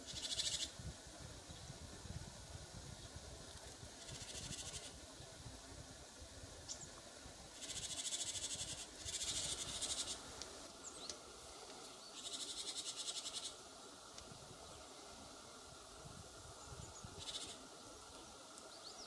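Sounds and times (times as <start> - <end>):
songbird rattling trills: 0.0 - 0.8, 4.0 - 5.0, 7.5 - 10.2, 11.9 - 13.6, 16.7 - 17.6
thin rising bird chirps: 0.0 - 0.8, 4.0 - 5.0, 6.6 - 11.2, 11.8 - 13.6, 16.6 - 19.0.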